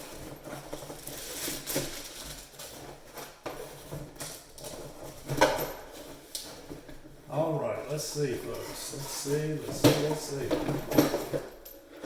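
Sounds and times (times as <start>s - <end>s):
packaging rustling: 0.0s - 5.3s.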